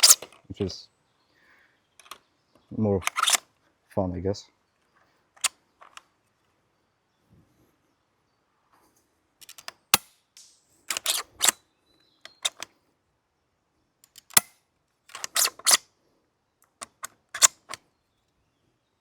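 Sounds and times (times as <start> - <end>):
rifle bolt clicking: 2.0 - 2.2, 3.0 - 3.4, 9.4 - 11.6, 12.3 - 12.7, 14.0 - 14.5, 15.1 - 15.8, 16.8 - 17.8.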